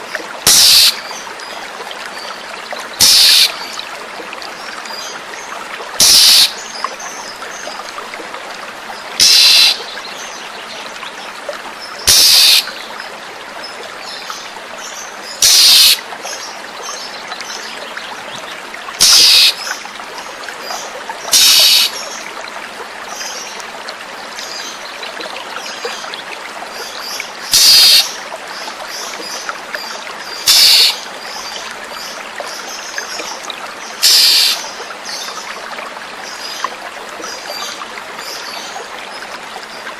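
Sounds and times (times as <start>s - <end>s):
water trickling: 0.0s - 39.9s
bird rasping calls: 0.5s - 1.0s, 3.0s - 3.6s, 6.0s - 6.5s, 9.2s - 9.8s, 12.1s - 12.7s, 15.4s - 16.0s, 19.0s - 19.6s, 21.3s - 21.9s, 27.5s - 28.1s, 30.5s - 31.0s, 34.0s - 34.6s.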